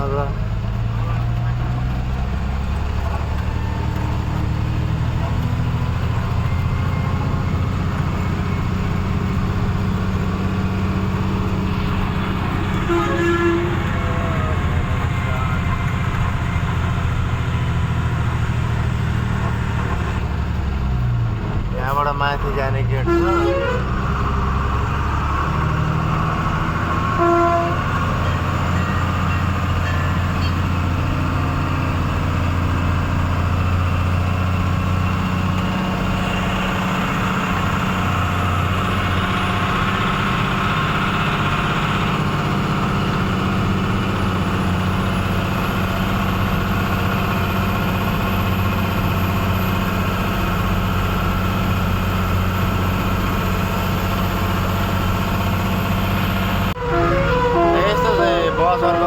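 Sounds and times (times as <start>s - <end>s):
truck diesel engine running: 0.0s - 59.0s
truck horn toot: 9.8s - 16.5s, 22.7s - 25.3s, 26.2s - 31.7s, 56.7s - 59.0s.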